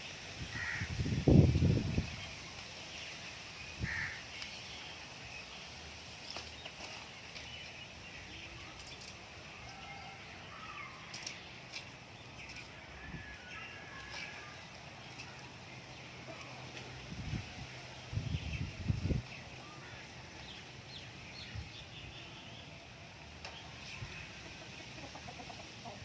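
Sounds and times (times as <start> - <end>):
birds calling: 0.0 - 26.0
outdoor background noise: 0.0 - 26.0.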